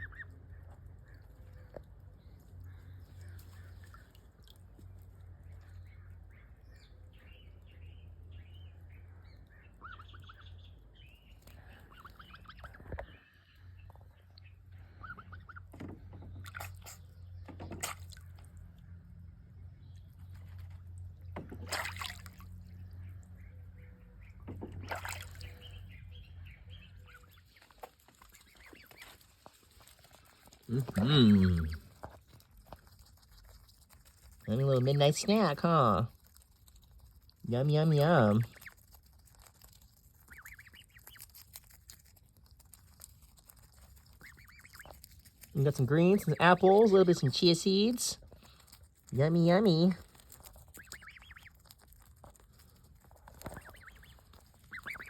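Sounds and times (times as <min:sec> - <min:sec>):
goose peeping calls: 0:00.0 - 0:01.7, 0:09.4 - 0:10.7, 0:11.5 - 0:13.5, 0:14.8 - 0:15.7, 0:22.9 - 0:32.1, 0:37.5 - 0:39.1, 0:40.1 - 0:41.6, 0:44.0 - 0:48.6, 0:50.6 - 0:52.0, 0:53.1 - 0:55.0
goose splashing in water: 0:16.1 - 0:17.0, 0:17.6 - 0:18.5, 0:21.3 - 0:23.3, 0:24.4 - 0:25.8, 0:27.1 - 0:32.3, 0:44.1 - 0:46.8, 0:47.7 - 0:51.6, 0:53.3 - 0:55.0.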